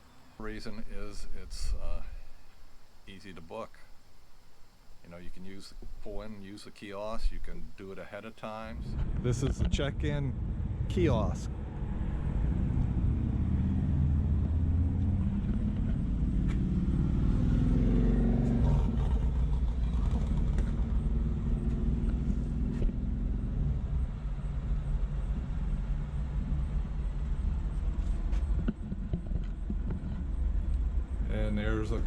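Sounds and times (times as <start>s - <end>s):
vehicle engine accelerating: 9.0s - 32.0s.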